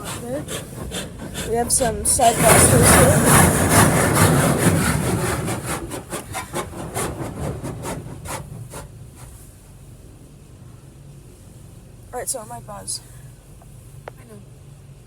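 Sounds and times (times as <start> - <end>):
high-pressure water spraying car: 0.0 - 10.2.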